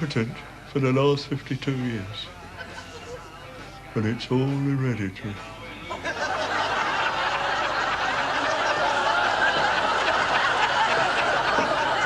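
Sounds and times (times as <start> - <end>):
studio audience laughing: 2.5 - 3.6, 5.9 - 12.0.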